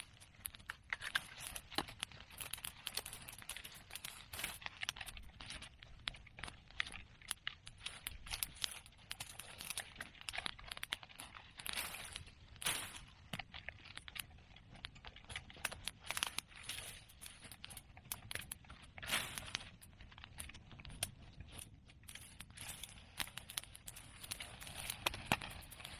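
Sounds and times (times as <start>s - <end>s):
bonfire crackling and popping: 0.0s - 25.9s.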